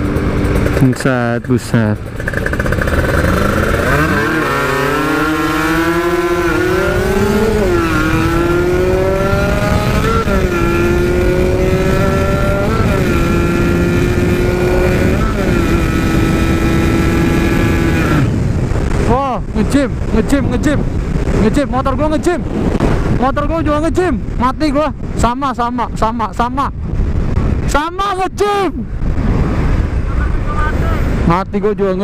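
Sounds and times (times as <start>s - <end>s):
motorcycle engine accelerating: 0.0s - 25.2s.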